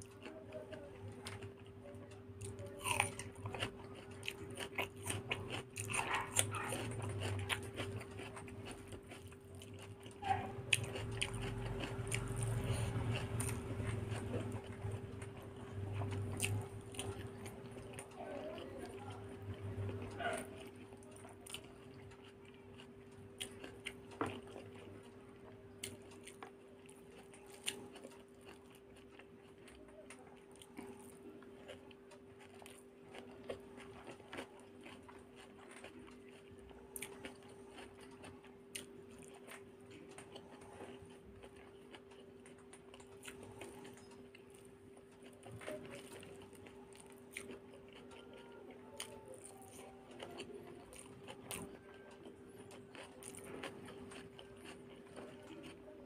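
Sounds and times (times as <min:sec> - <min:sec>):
chewing with mouth smacks: 0:00.0 - 0:56.0
faint steady hum: 0:00.0 - 0:56.0.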